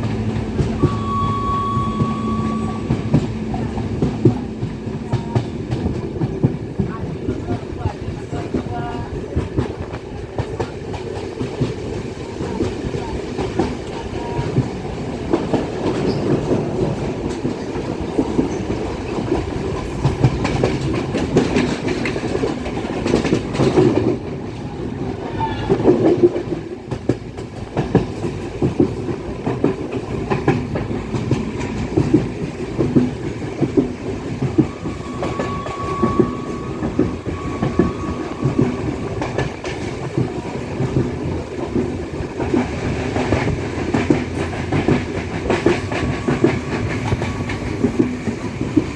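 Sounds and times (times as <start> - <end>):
train rumble: 0.0 - 48.9
wheels clattering over rail joints: 1.8 - 24.7.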